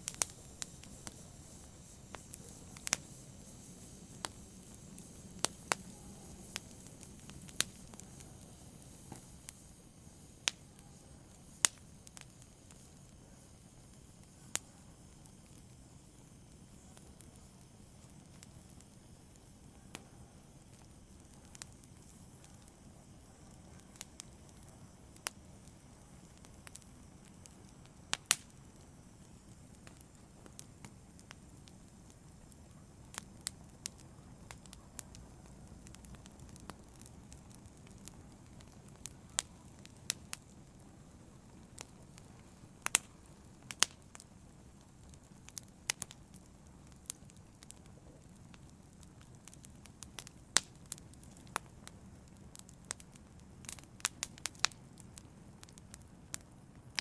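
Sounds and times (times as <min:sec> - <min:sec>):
faint steady hiss: 0:00.0 - 0:57.0
fireplace fire crackling: 0:00.0 - 0:57.0.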